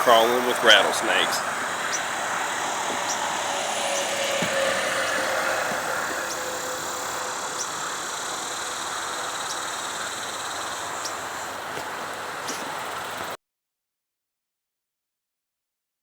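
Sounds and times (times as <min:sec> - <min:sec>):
bird chirps: 0:00.0 - 0:11.6
highway traffic hiss: 0:00.0 - 0:13.4
rattlesnakes rattling: 0:00.0 - 0:13.4.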